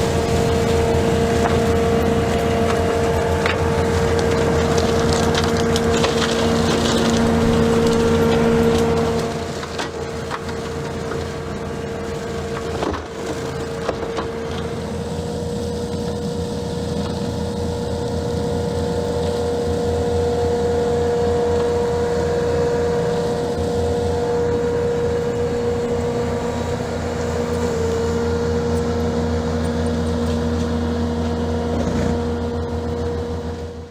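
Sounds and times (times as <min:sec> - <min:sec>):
brush cutter engine whining: 0:00.0 - 0:18.3, 0:18.9 - 0:33.9
woody growth cracking: 0:02.5 - 0:11.6.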